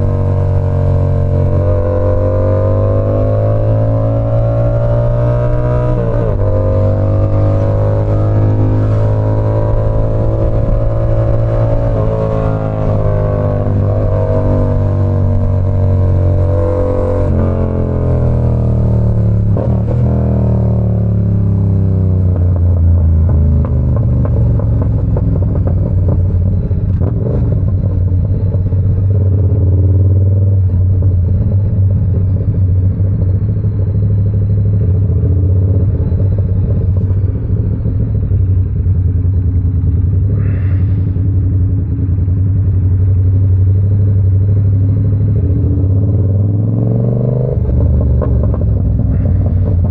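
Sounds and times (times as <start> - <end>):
motorcycle engine droning: 0.0 - 49.9.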